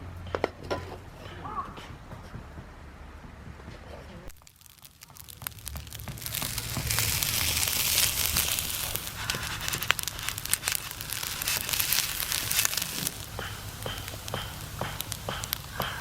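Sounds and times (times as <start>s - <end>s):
crinkling and rustling: 4.2s - 15.8s.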